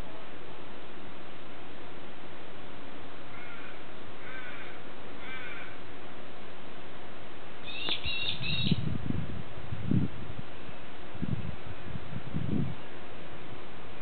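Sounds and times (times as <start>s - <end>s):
low wind rumble: 0.0s - 14.0s
bird calling: 7.6s - 8.8s.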